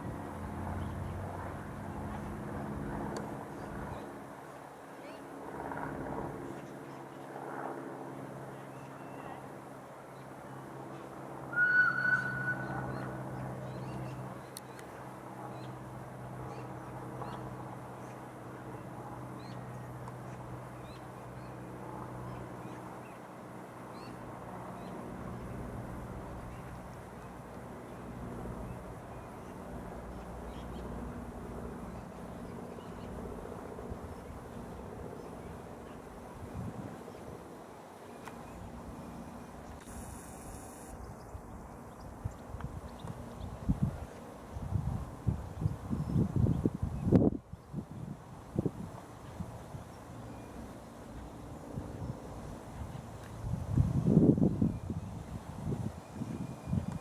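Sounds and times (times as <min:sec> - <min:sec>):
steam whistle high toot: 0:11.5 - 0:12.8.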